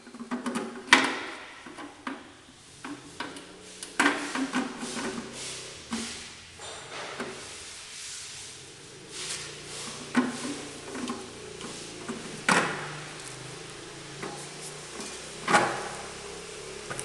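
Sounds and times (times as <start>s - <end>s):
steady low hum: 7.3s - 17.0s.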